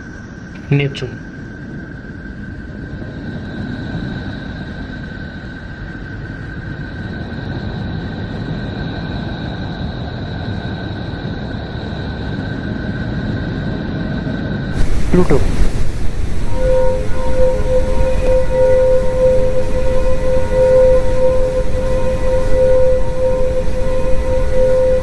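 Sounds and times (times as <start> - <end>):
low rumble: 14.6 - 25.0
high whistling tone: 14.7 - 25.0.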